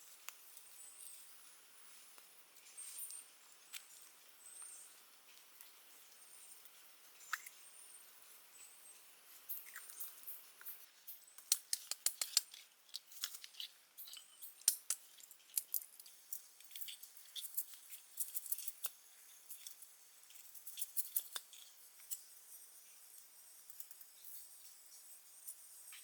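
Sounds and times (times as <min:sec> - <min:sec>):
small crisp clicks and snips: 0:09.5 - 0:19.8, 0:20.4 - 0:22.3.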